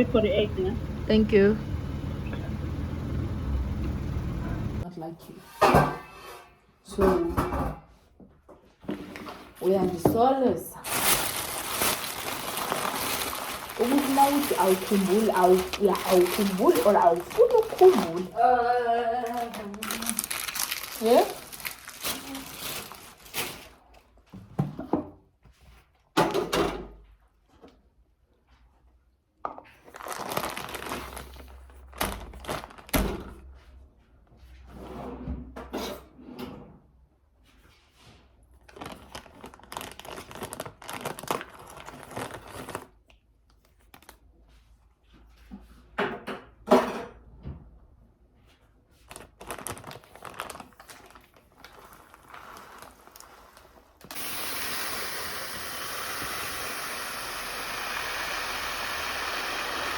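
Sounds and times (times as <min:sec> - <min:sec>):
crinkling: 0:10.8 - 0:18.5, 0:19.1 - 0:24.2, 0:29.7 - 0:32.9, 0:38.6 - 0:44.4, 0:48.9 - 0:54.3.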